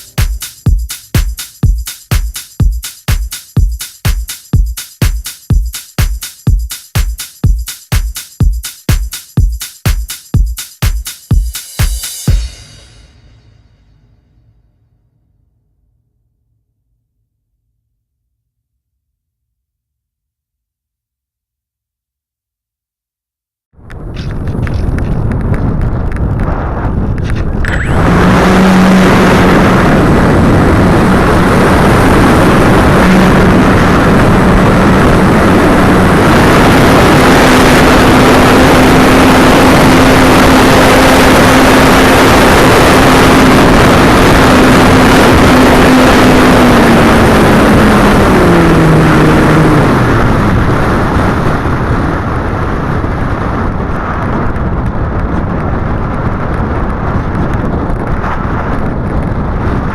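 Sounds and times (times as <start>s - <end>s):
wind buffeting the microphone: 23.8s - 59.9s.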